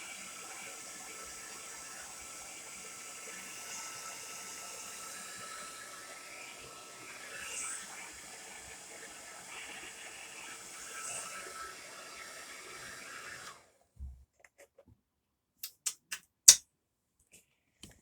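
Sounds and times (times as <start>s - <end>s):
hair dryer running: 0.0s - 13.7s.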